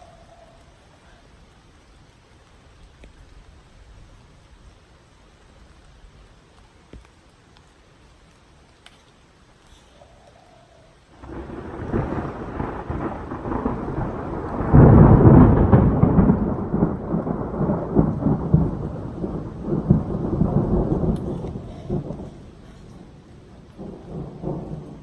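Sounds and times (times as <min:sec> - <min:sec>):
thunder rumbling: 0:11.1 - 0:25.0.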